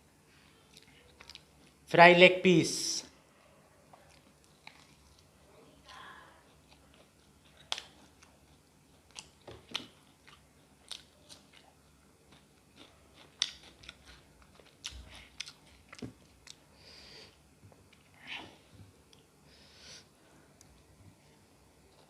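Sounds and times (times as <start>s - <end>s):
wet chewing clicks: 0.7s - 1.5s, 5.9s - 16.6s.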